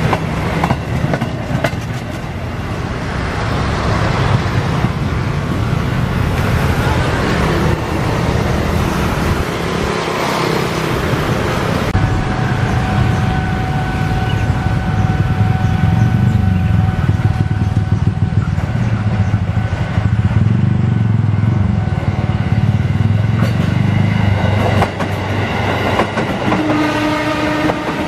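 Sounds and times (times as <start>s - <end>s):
road traffic passing: 0.0s - 28.0s
crossing warning signal tone: 12.0s - 18.6s.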